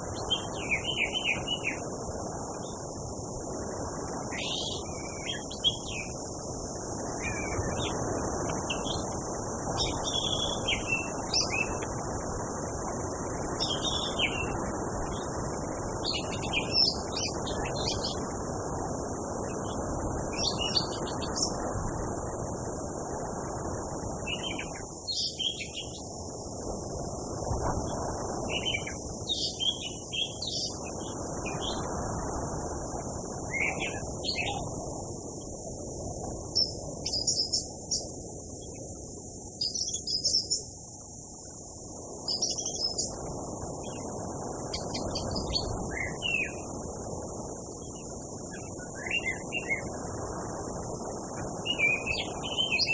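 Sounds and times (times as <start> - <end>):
high hiss: 0.0 - 52.9
bird chirping: 8.6 - 11.9, 13.6 - 15.3, 36.6 - 38.1, 39.6 - 40.7, 42.3 - 43.2, 51.7 - 52.9.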